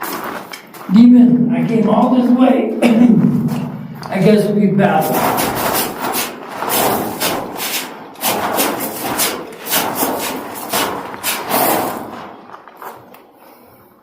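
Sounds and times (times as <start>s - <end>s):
rough scraping and rubbing: 4.9s - 13.0s.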